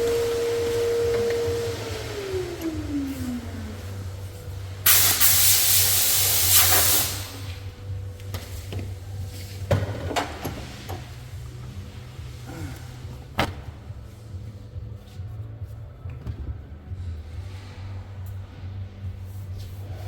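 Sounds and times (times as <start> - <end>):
pressurised air hissing: 0.0 - 7.8
steady low hum: 0.0 - 20.0.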